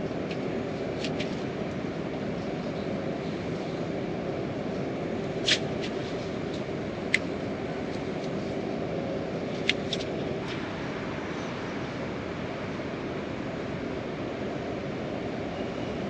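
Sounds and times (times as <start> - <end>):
heavy rain hiss: 5.3 - 15.5.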